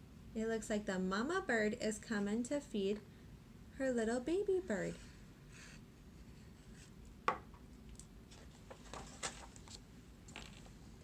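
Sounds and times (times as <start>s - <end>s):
paper rustling: 8.3s - 10.8s.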